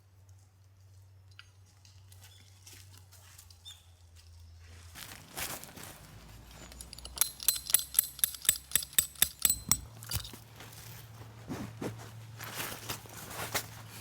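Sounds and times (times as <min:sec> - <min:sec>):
metallic taps ringing: 0:06.6 - 0:10.4.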